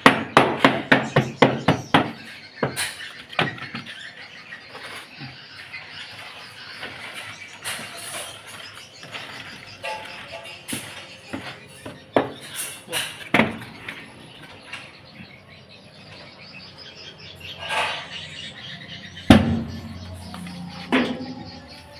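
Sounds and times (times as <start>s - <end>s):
sharp knocks and clatters: 0.0s - 4.1s, 6.7s - 15.0s, 19.2s - 21.6s.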